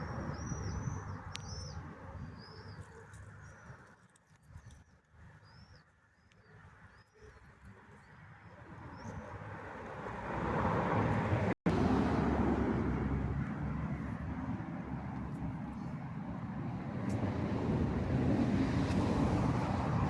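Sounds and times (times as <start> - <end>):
small birds chirping: 0.0 - 9.4
vehicle noise: 9.1 - 20.0.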